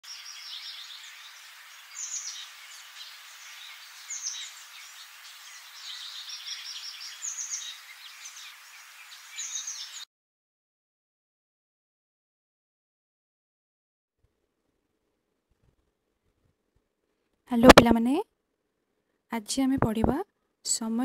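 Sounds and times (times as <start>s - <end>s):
steady outdoor hiss: 0.0s - 10.0s
birds chirping and trilling: 0.0s - 10.1s.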